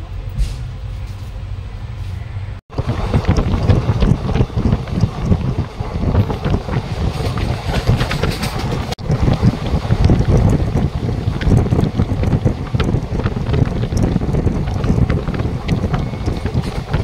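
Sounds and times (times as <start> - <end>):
train wheels rumbling on track: 0.0 - 17.0
wind buffeting microphone: 2.6 - 17.0.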